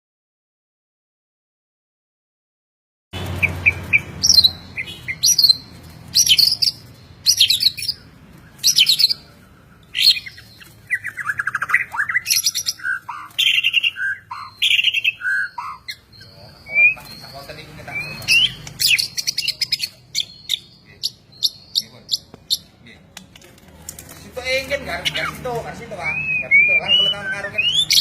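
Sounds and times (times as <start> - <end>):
songbird whistles and trills: 3.4 - 22.7, 26.0 - 28.0.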